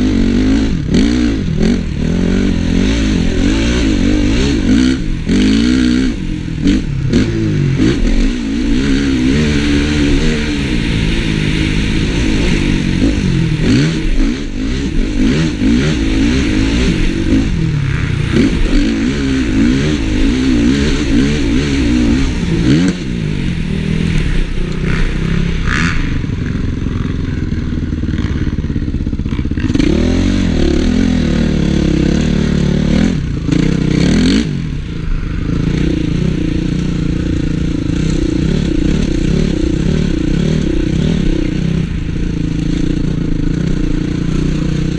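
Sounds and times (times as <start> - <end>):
motorbike engine revving: 0.0 - 44.9.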